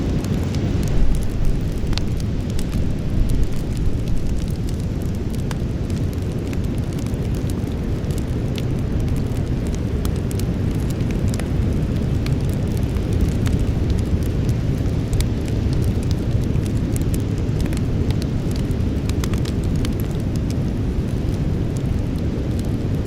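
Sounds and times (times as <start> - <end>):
low rumble: 0.0 - 5.3
campfire crackling and popping: 0.0 - 23.0.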